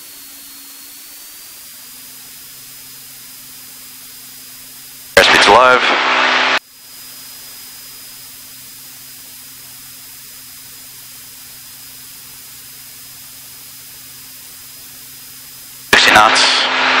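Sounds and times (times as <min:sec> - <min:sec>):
intercom static hiss: 0:05.2 - 0:06.6, 0:15.9 - 0:17.0
faint airplane engine hum: 0:05.2 - 0:07.7.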